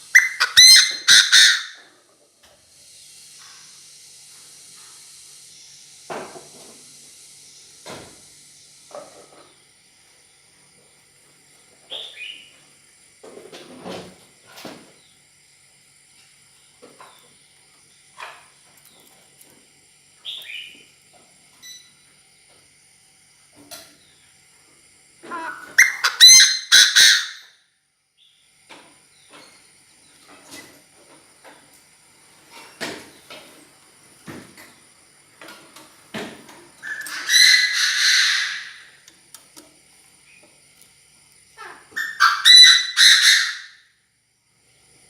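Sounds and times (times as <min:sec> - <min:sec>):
francolin harsh crowing: 0:36.8 - 0:39.0, 0:41.9 - 0:43.9.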